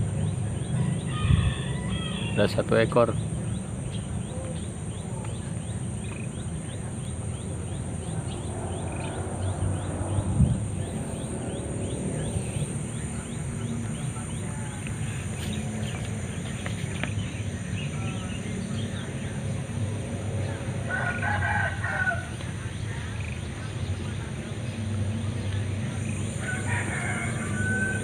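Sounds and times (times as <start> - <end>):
high insect drone: 0.0 - 28.0
rapid insect chirp: 0.0 - 28.0
low rumble: 7.3 - 16.4.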